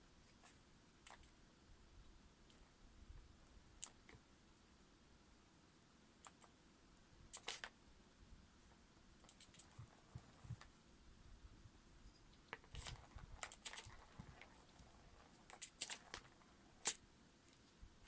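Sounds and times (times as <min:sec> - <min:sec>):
kitten paws tapping and scratching: 0:00.2 - 0:01.4, 0:07.3 - 0:07.8, 0:09.2 - 0:10.8, 0:12.3 - 0:17.8.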